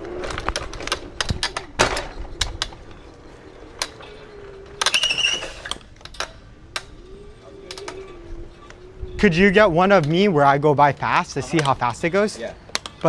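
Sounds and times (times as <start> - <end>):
scooter clattering knocks: 0.0 - 7.0
electric scooter motor whine: 0.0 - 10.4
squeaky rattle: 0.7 - 9.0.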